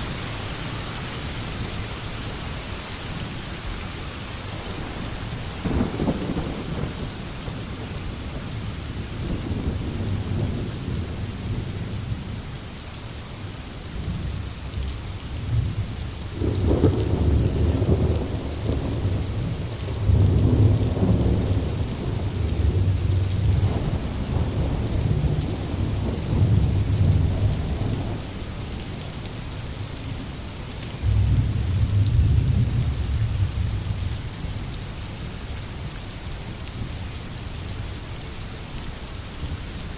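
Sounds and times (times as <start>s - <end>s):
steady rain: 0.0s - 39.9s
rolling thunder: 14.0s - 28.3s, 31.0s - 34.2s.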